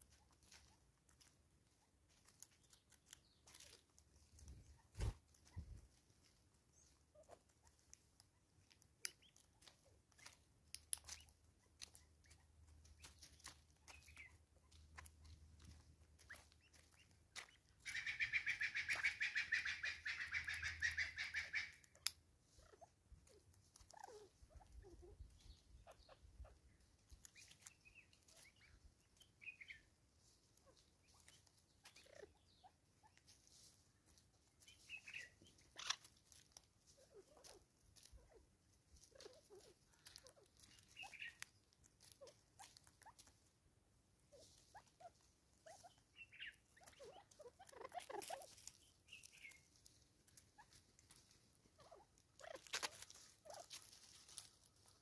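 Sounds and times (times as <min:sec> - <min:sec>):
rapid rattling bird call: 0:17.8 - 0:21.8.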